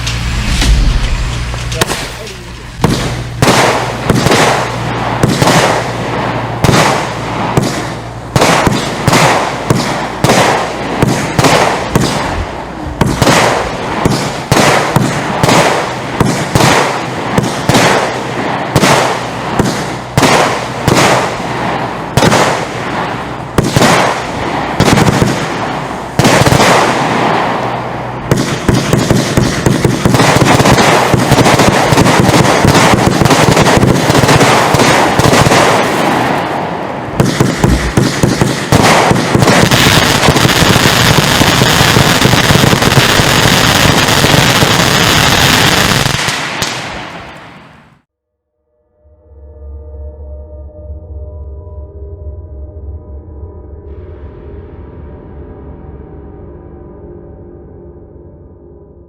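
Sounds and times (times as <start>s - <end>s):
firework bangs: 0.0s - 48.1s
firework crackling: 0.0s - 48.1s.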